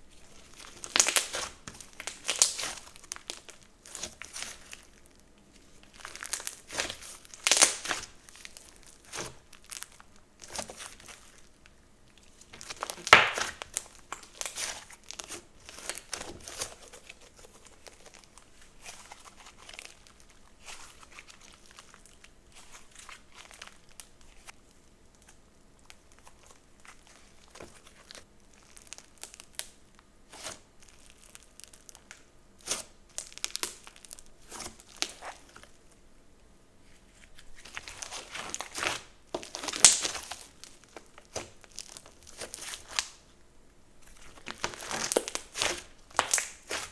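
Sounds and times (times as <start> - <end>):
slime squished by hand: 0.2 - 5.0, 5.9 - 11.4, 12.5 - 18.2, 37.6 - 43.2, 44.1 - 46.9.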